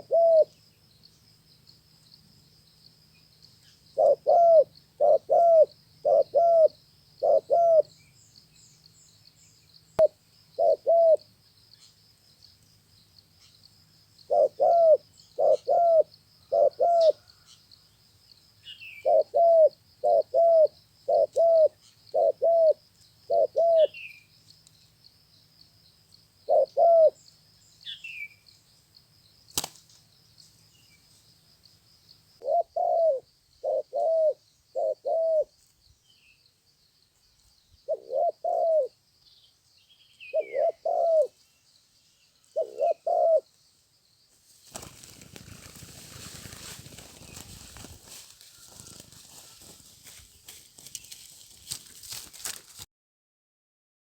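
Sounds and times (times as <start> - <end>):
dove cooing: 0.0 - 0.6, 4.0 - 7.9, 10.0 - 11.3, 14.3 - 17.5, 18.8 - 24.1, 26.5 - 27.2, 32.4 - 35.5, 37.9 - 38.9, 40.3 - 41.4, 42.6 - 43.5, 44.8 - 49.9.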